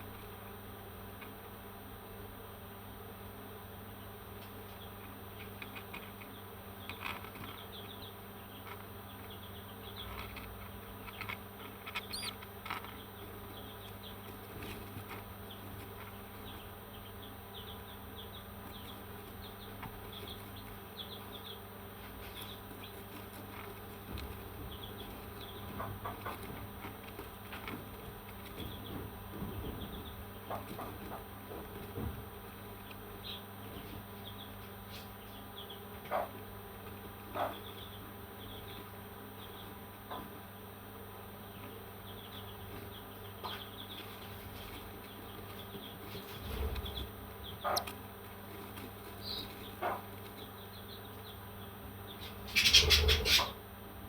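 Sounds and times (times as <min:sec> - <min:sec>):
steady background hum: 0:00.0 - 0:54.0
parrot chirping and chattering: 0:11.1 - 0:13.7, 0:46.6 - 0:48.0, 0:52.2 - 0:53.6.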